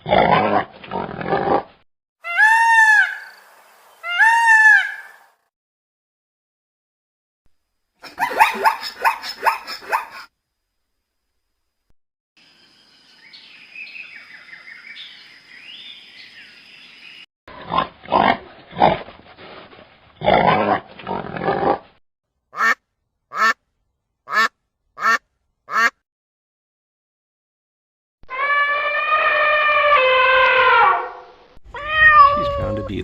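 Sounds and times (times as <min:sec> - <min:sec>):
high animal chirping: 0:08.0 - 0:10.2
loud rough animal calls: 0:28.3 - 0:33.0.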